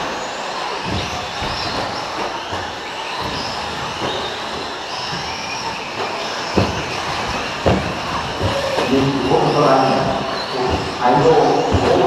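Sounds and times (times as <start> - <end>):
tyre and track noise: 0.6 - 12.0.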